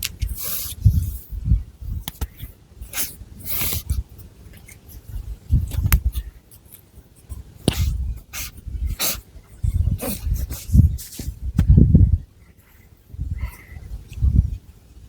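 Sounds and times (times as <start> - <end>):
low thuds of hands near microphone: 9.6 - 12.2.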